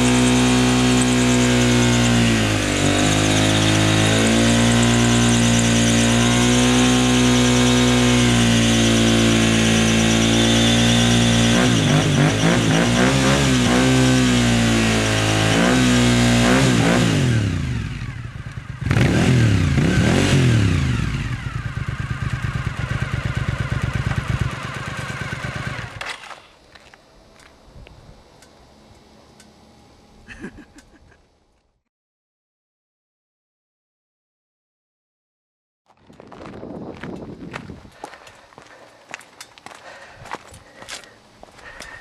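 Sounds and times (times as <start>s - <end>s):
motorcycle engine revving: 0.0s - 26.1s
tire spinning on pavement: 0.0s - 26.1s, 35.9s - 42.0s.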